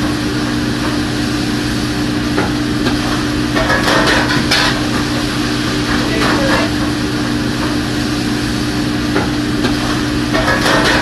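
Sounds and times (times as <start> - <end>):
kitchen equipment humming: 0.0 - 11.0.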